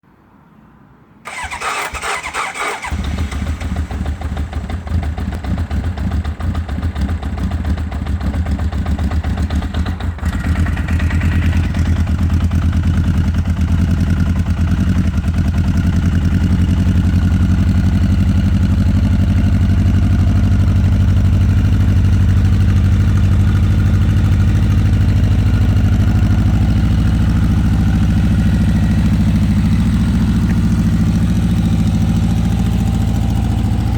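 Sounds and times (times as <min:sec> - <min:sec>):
electric starter cranking: 0:01.3 - 0:03.5
motorcycle engine idling: 0:01.3 - 0:33.9.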